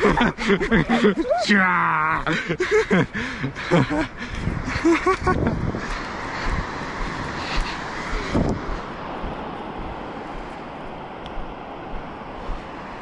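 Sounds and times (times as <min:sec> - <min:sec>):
ocean surf rushing: 0:00.0 - 0:13.0
wind buffeting microphone: 0:02.5 - 0:13.0.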